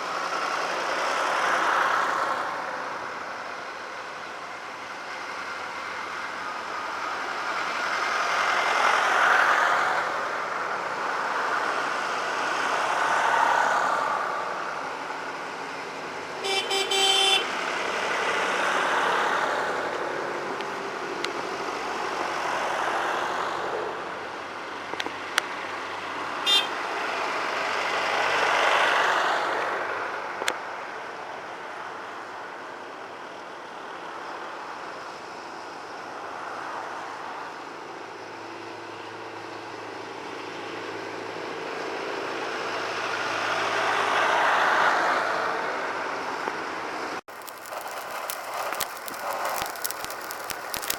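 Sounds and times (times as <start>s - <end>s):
tractors driving past: 0.0s - 50.9s
short high horn toot: 16.4s - 17.5s, 26.5s - 26.8s.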